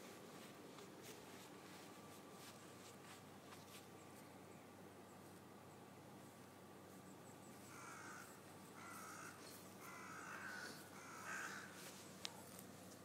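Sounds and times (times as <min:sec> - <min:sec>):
faint bird calls: 0:07.0 - 0:12.9.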